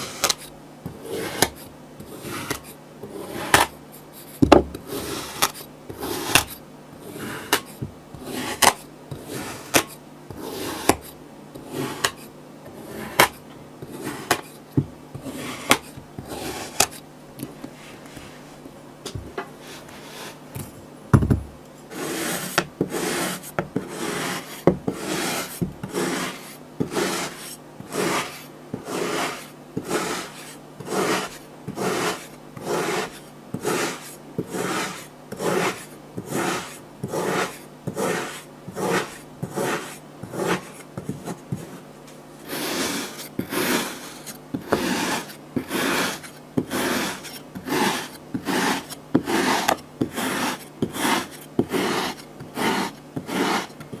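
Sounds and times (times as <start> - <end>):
tool scraping through sand: 21.9 - 40.8, 42.5 - 53.7.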